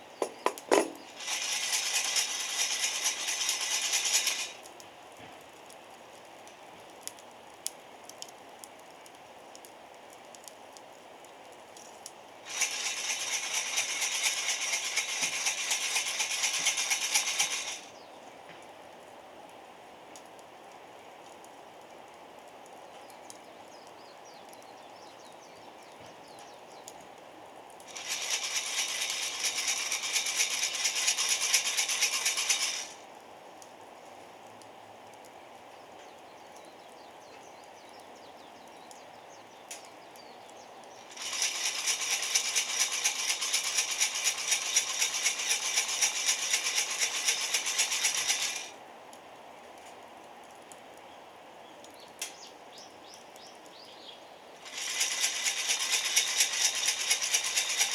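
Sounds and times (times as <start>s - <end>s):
coffee beans rattling in roaster: 0.2s - 4.6s, 12.5s - 18.0s, 27.9s - 33.0s, 41.1s - 48.8s, 54.6s - 57.9s.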